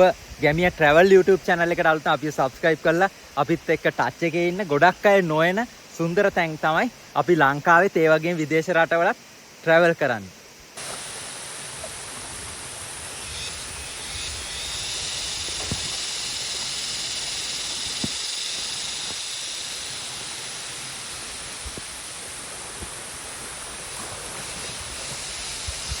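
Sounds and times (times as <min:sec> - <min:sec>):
waterfall rushing over rock: 0:15.4 - 0:26.0.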